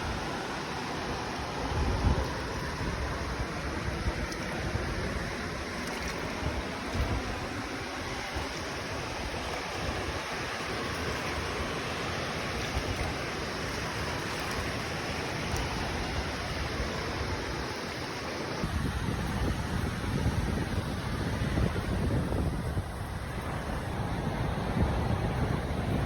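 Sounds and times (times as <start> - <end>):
wind rumble on microphone: 0.0 - 17.8, 18.6 - 26.0
ocean surf rushing: 0.0 - 22.0.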